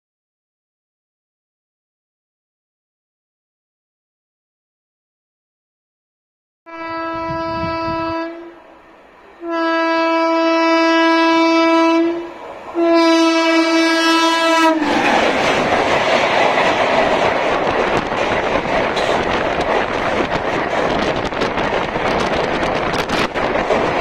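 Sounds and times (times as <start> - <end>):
train horn blasts: 6.7 - 8.8, 9.4 - 14.9
train coaches rushing past: 11.5 - 24.0.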